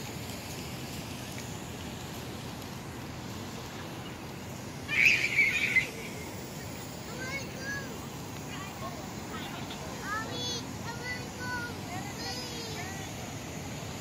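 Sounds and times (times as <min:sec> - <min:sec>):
outdoor background hiss: 0:00.0 - 0:14.0
birds chattering: 0:03.6 - 0:10.2.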